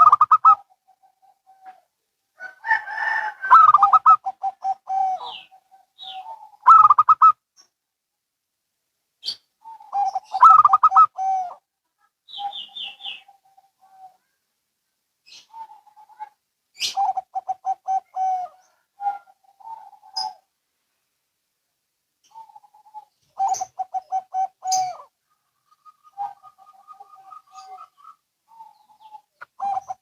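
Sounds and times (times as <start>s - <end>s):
doves cooing: 0.0s - 7.4s, 9.2s - 11.7s, 15.3s - 20.5s, 22.2s - 30.0s.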